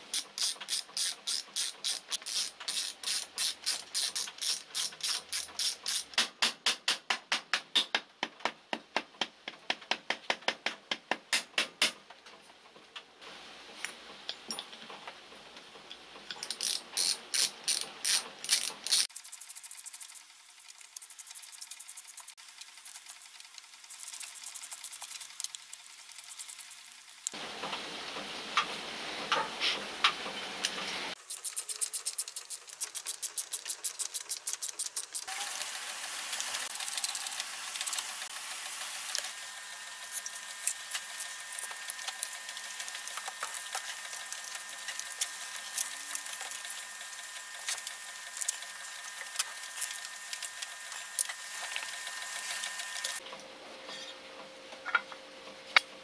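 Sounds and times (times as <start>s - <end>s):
clicks and knocks of parts: 15.9s - 19.1s
screws driven into metal: 16.4s - 19.1s.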